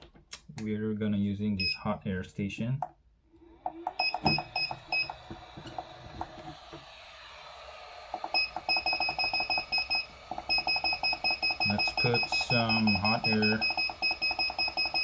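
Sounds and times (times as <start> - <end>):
rapid two-tone beeps: 4.0 - 5.2, 8.2 - 15.0.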